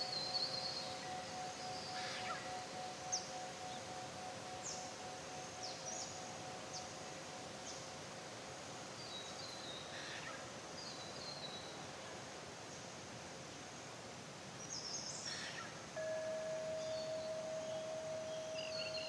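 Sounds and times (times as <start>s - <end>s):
descending bird trill: 0.0s - 5.0s, 16.0s - 19.0s
faint held ringing tone: 0.0s - 10.1s, 15.9s - 19.0s
songbirds chirping: 0.0s - 19.0s
steady background hiss: 0.0s - 19.0s.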